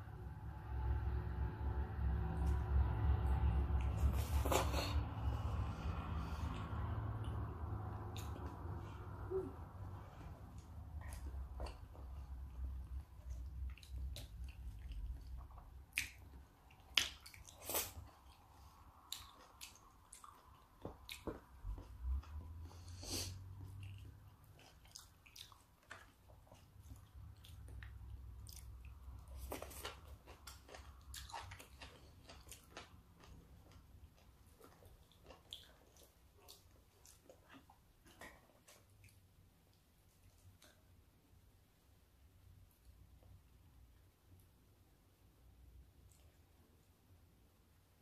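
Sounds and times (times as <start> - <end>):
person chewing: 3.3 - 41.0.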